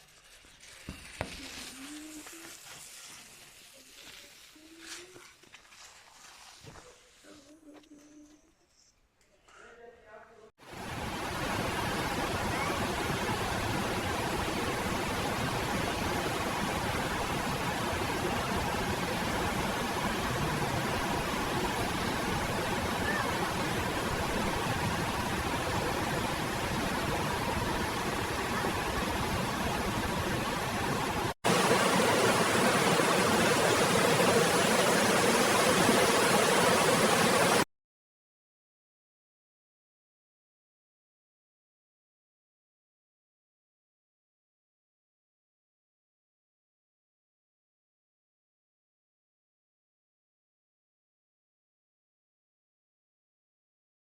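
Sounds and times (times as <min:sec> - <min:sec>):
rushing water: 0:10.7 - 0:37.6.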